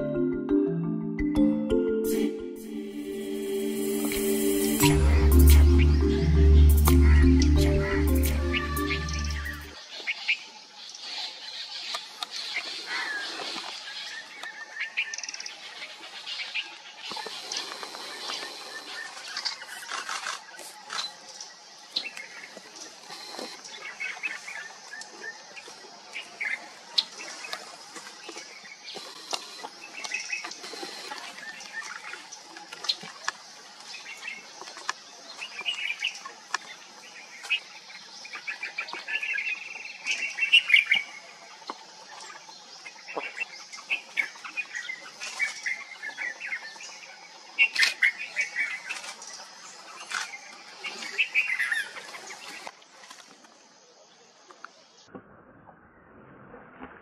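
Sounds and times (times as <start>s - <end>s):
steady high-pitched drone: 0.0s - 9.8s
songbirds chirping: 0.0s - 55.1s.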